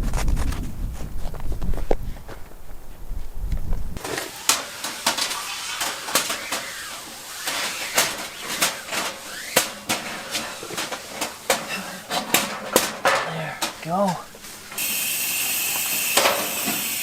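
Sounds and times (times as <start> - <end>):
wind rumble on microphone: 0.0 - 4.0
cookware clinking and knocking: 4.1 - 13.8.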